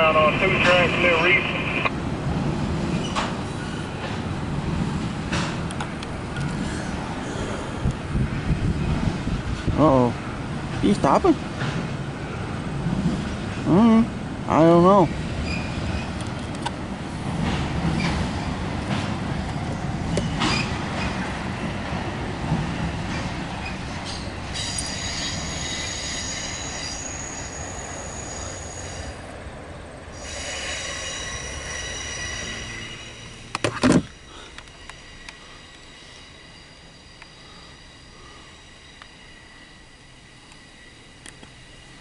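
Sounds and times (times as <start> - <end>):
freight train rumbling over bridge: 0.0 - 42.0
wheels squealing on rails: 2.8 - 4.2, 15.2 - 16.2, 20.2 - 21.4, 22.8 - 29.3, 30.1 - 42.0.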